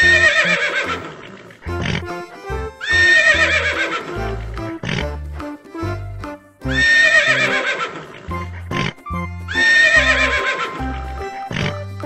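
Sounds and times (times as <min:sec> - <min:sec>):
horse whinnying: 0:00.0 - 0:02.2, 0:02.8 - 0:05.1, 0:06.7 - 0:11.0
music with steady beat: 0:04.1 - 0:06.8, 0:10.7 - 0:12.0.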